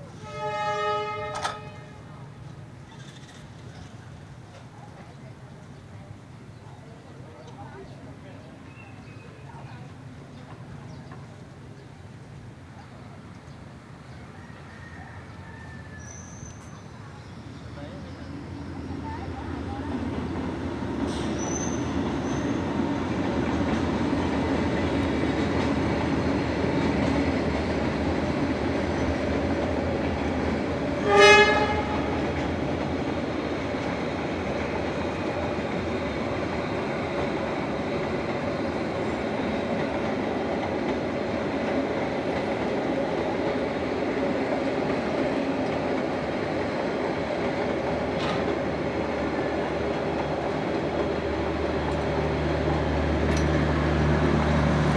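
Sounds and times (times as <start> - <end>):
train rumbling on rails: 0.0 - 54.9
train horn blast: 0.1 - 2.2, 31.0 - 32.4.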